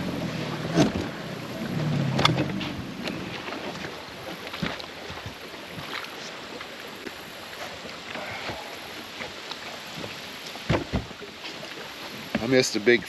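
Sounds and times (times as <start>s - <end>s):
water hiss: 5.7s - 13.0s
light knocks on boat: 10.0s - 11.2s, 12.3s - 12.6s.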